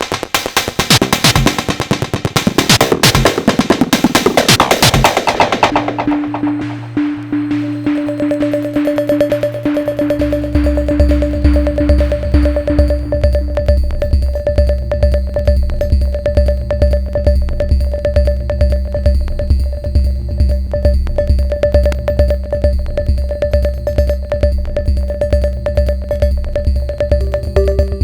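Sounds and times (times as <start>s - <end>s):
fast clicking percussion: 0.0s - 28.0s
kick drum: 0.0s - 28.0s
held synth tone: 27.2s - 28.0s.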